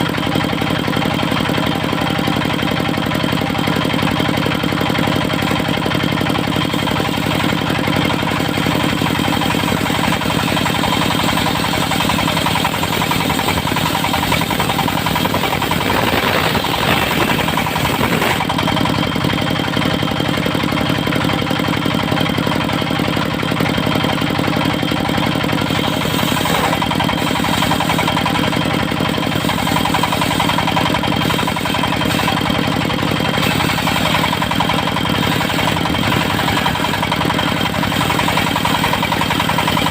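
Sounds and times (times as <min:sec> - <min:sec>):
sawmill engine running: 0:00.0 - 0:39.9
saw blade cutting wood: 0:06.6 - 0:19.0, 0:25.4 - 0:39.9.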